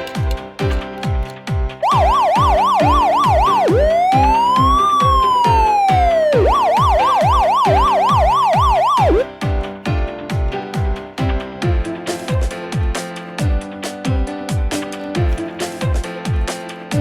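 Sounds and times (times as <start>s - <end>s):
background music with steady beat: 0.0s - 17.0s
electronic siren yelp: 1.8s - 9.3s.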